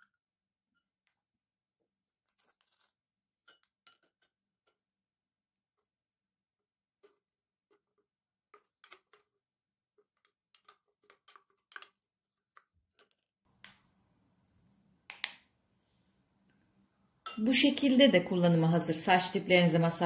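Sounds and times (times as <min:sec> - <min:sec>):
utensils clinking on glassware: 0:17.2 - 0:17.6.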